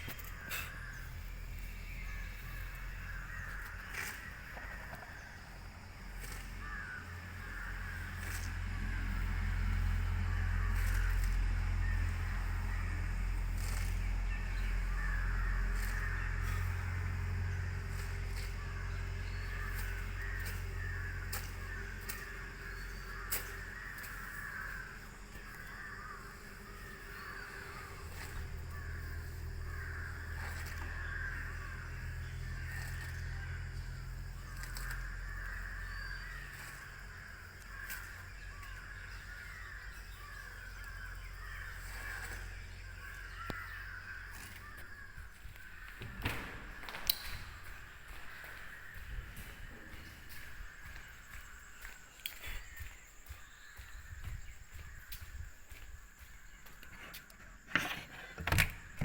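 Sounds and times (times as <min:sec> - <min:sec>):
birds calling: 0:00.0 - 0:59.0
low hum: 0:00.0 - 0:59.0
sharp clicks: 0:46.2 - 0:47.6.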